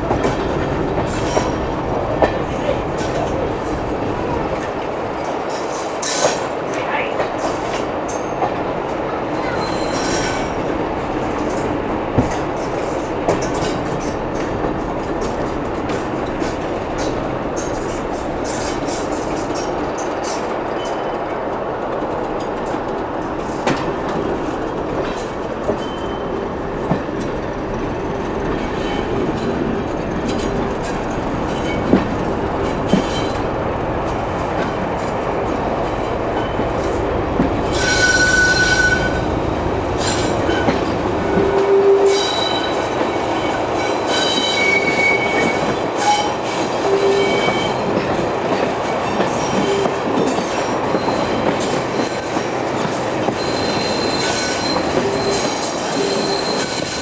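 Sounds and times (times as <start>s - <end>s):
train wheels rumbling on track: 0.0s - 57.0s
wheel squeals: 9.4s - 10.6s, 25.8s - 26.4s, 37.6s - 39.2s, 49.0s - 52.4s, 53.3s - 57.0s
clicks at rail joints: 11.4s - 26.2s.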